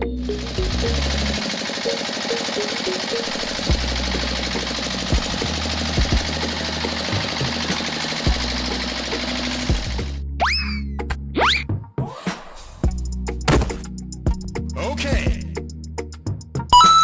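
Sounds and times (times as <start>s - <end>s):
background music: 0.0s - 17.0s
small motor buzzing: 0.2s - 10.2s.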